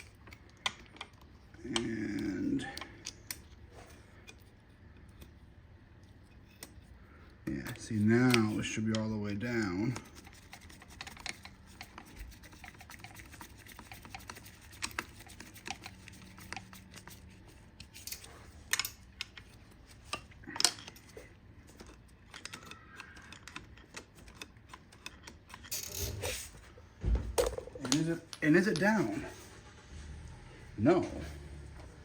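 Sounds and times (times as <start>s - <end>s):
small parts clicking and tapping: 6.3s - 26.2s.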